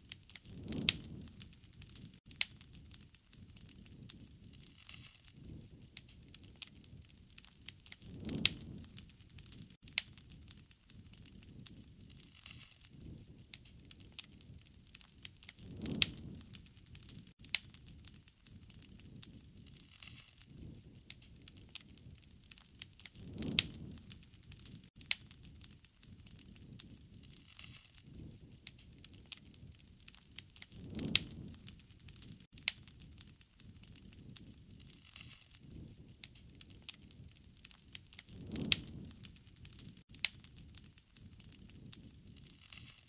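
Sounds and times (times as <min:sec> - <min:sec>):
wood fire crackling and popping: 0:00.0 - 0:43.0
low rushing surge of flames: 0:00.4 - 0:02.1, 0:08.0 - 0:09.8, 0:15.6 - 0:17.3, 0:23.1 - 0:24.9, 0:30.7 - 0:32.4, 0:38.3 - 0:40.0.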